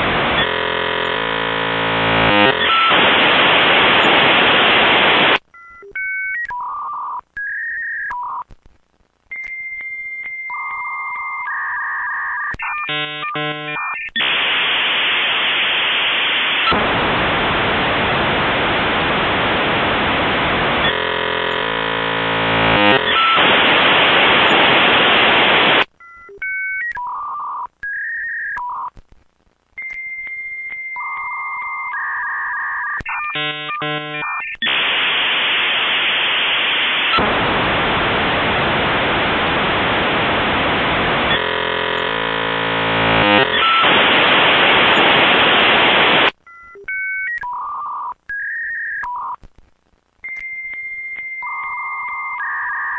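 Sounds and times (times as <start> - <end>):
hissing static noise: 0.0 - 5.5, 12.4 - 26.0, 32.7 - 46.4
dial-up modem tones and beeps: 0.0 - 8.5, 9.3 - 16.7, 20.8 - 29.0, 29.8 - 37.2, 41.2 - 49.4, 50.2 - 52.9.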